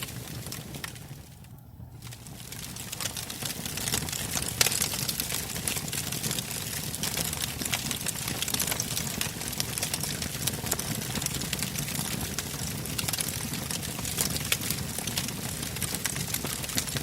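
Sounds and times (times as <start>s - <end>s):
logs crackling and popping: 0.0s - 17.0s
low rush of flame: 0.0s - 17.0s.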